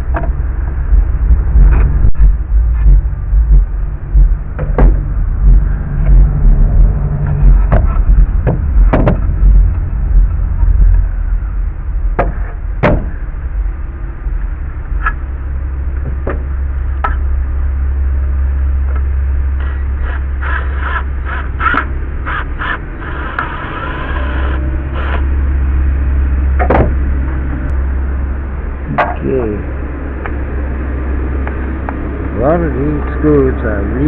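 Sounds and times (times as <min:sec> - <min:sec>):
low rumble: 0:00.0 - 0:34.0
wood and tools knocking: 0:07.4 - 0:09.3.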